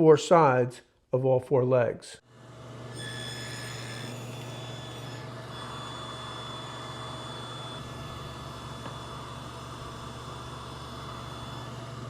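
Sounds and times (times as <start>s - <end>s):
table saw humming and whining: 2.3s - 12.0s
saw cutting wood: 2.4s - 12.0s.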